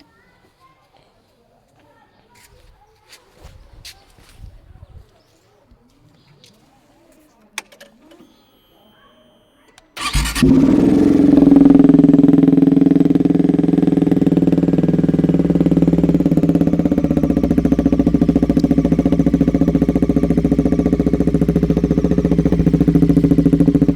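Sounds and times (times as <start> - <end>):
motorcycle engine idling: 10.0 - 23.9.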